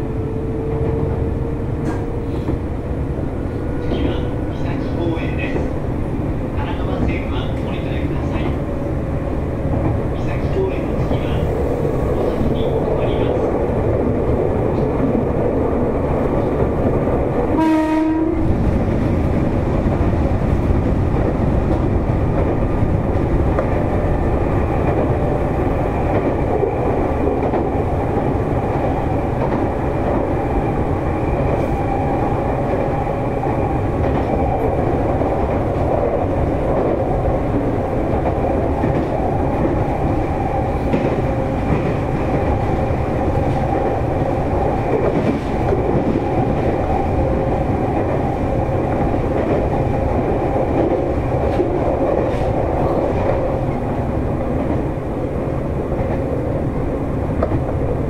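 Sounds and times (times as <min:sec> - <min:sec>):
train rumble from inside: 0:00.0 - 0:58.0
train horn: 0:17.6 - 0:18.5.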